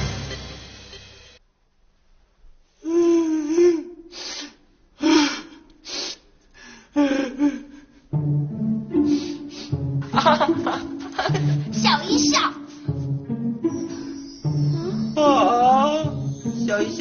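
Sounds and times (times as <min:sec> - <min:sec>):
music: 0:00.0 - 0:01.4, 0:07.2 - 0:17.0.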